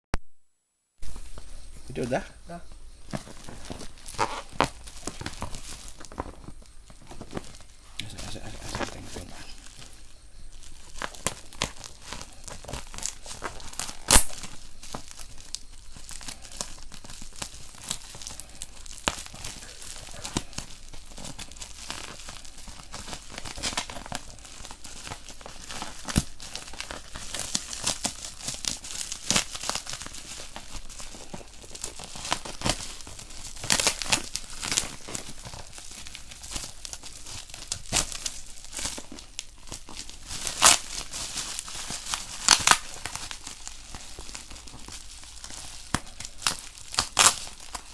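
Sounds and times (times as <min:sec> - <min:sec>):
packaging crinkling and tearing: 0:02.8 - 0:47.9
sharp packaging snaps: 0:03.0 - 0:09.9, 0:10.6 - 0:47.9.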